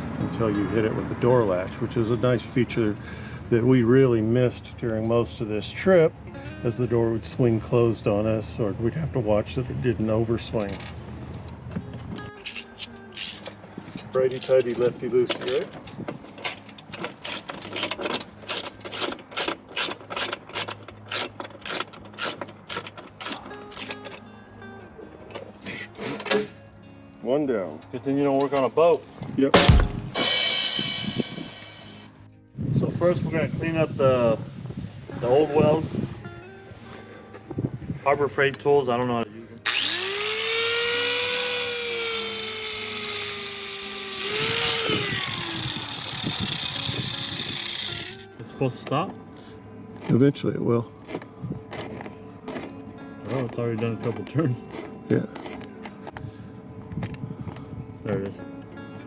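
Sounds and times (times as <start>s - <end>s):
ratchet wrench clicking: 12.4s - 13.6s, 16.4s - 24.2s, 39.7s - 48.2s
metal scraping: 29.5s - 32.2s
electric power tool whining: 39.6s - 48.3s.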